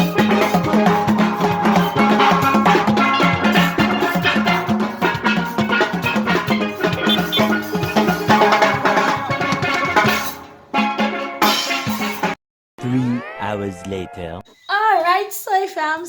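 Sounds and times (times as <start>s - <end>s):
drums and percussion: 0.0s - 12.4s
steel pan band playing: 0.0s - 12.4s.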